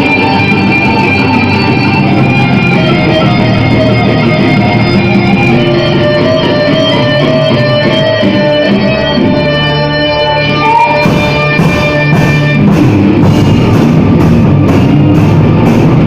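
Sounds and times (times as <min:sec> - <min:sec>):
bowed violin line: 0:00.0 - 0:12.7
metal band playing: 0:00.0 - 0:16.0.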